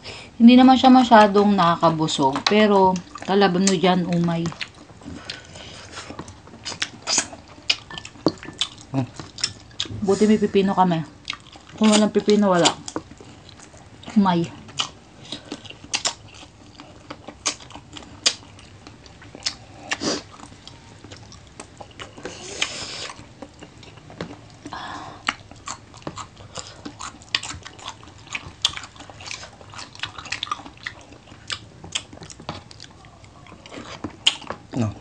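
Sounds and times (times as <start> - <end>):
people chewing and crunching: 0.1 - 35.0
noisy sucking mouth sounds: 19.8 - 20.3, 22.2 - 23.2.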